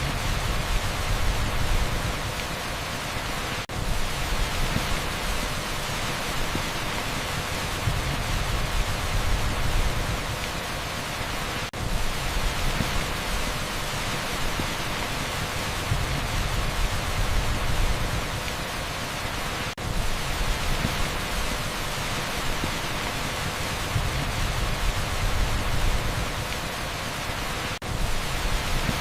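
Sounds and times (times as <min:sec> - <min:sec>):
heavy rain on asphalt: 0:00.0 - 0:29.0.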